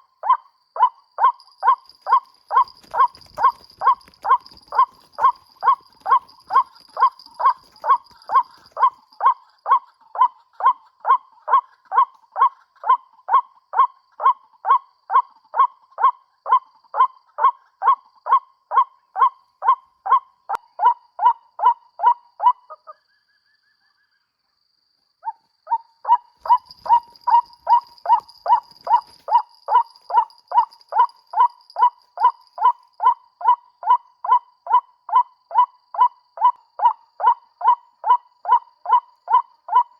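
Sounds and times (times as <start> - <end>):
waterhen croaking call: 0.0 - 13.0, 26.1 - 39.9.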